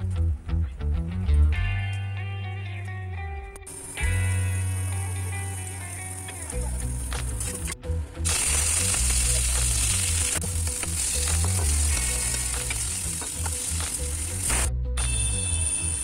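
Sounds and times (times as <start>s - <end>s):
chicken sizzling in hot oil: 3.7s - 7.7s, 8.3s - 16.0s.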